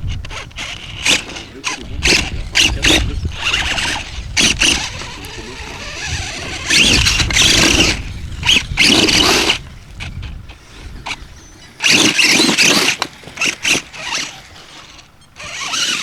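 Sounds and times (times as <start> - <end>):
wind rumble: 0.0 - 12.2
toy car motor whining: 0.0 - 16.0.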